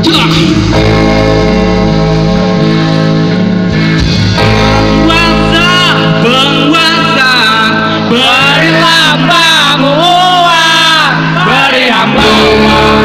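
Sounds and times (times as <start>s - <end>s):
guitar band music: 0.0s - 13.0s
person singing: 5.0s - 13.0s.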